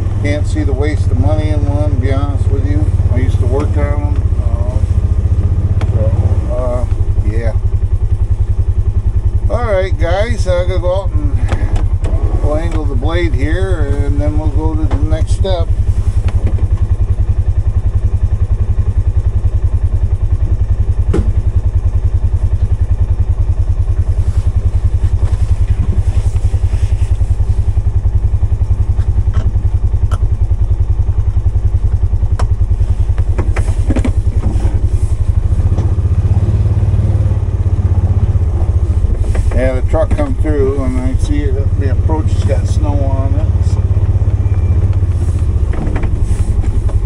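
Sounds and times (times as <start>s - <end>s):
engine running: 0.0s - 47.0s
sharp knocks and clunks: 21.0s - 21.5s, 33.2s - 34.9s, 45.6s - 47.0s.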